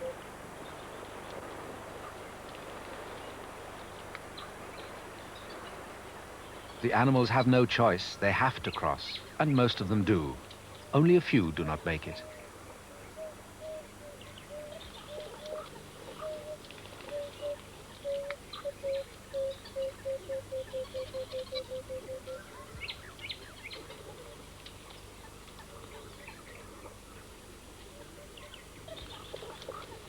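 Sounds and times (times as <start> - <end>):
birds chirping: 4.4 - 24.2.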